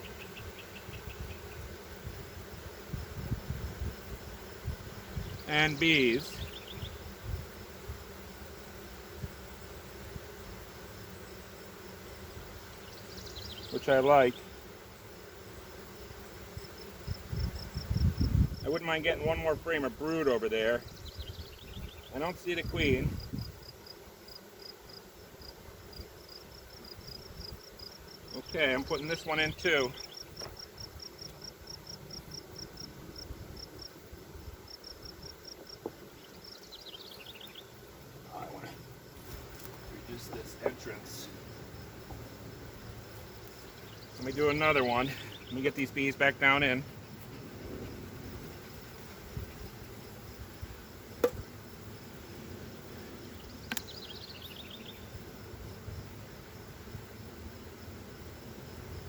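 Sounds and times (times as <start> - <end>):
honey bees humming: 0.0 - 59.0
insect chirping: 0.0 - 59.0
sharp knock: 51.2 - 51.4
click: 53.7 - 53.9.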